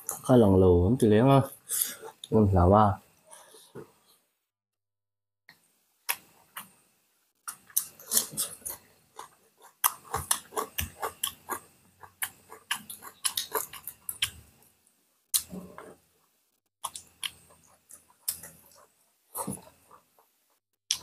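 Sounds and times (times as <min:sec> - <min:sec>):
people chewing food: 0:01.6 - 0:02.3, 0:07.4 - 0:21.0.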